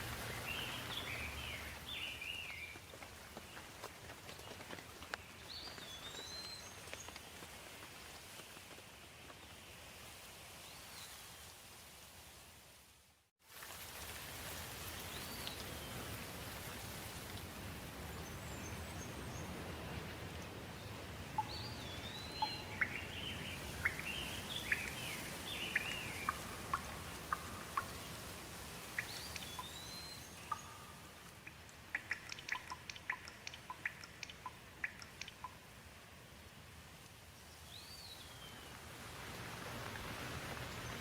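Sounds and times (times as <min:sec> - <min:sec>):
birds chirping: 0:00.0 - 0:07.4, 0:20.7 - 0:35.6
steady rain: 0:00.0 - 0:41.0
water drops dripping: 0:25.7 - 0:28.1, 0:30.4 - 0:35.7.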